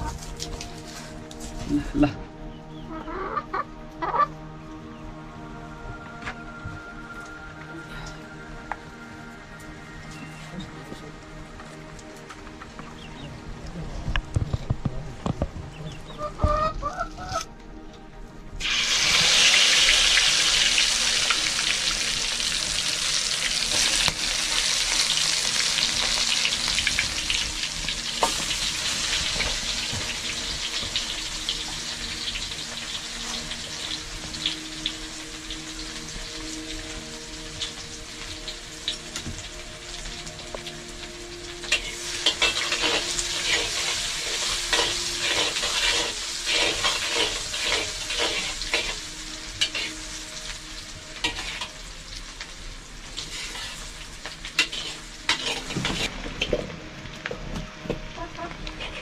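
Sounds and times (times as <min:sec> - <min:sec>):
food sizzling in hot oil: 0:18.6 - 0:56.4.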